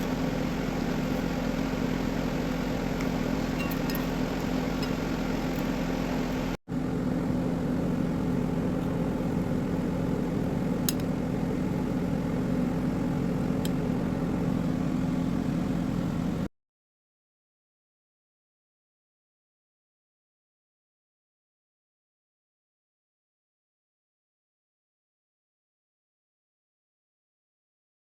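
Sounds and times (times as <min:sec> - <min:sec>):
low mechanical hum: 0:00.0 - 0:16.5.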